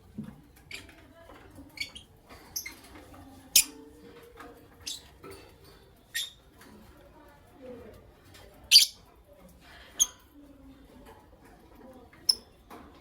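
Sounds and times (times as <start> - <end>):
birds chirping: 0.5 - 3.9, 4.7 - 6.6.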